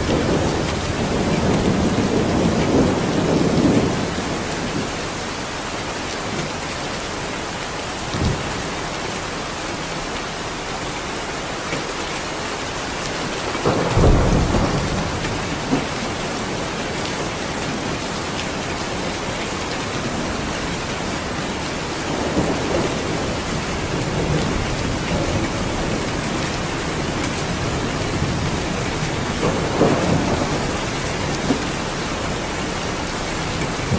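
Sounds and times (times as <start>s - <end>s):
low rumbles of thunder: 0.0s - 5.0s, 13.2s - 19.4s, 20.0s - 33.9s
heavy rainfall: 0.0s - 33.9s.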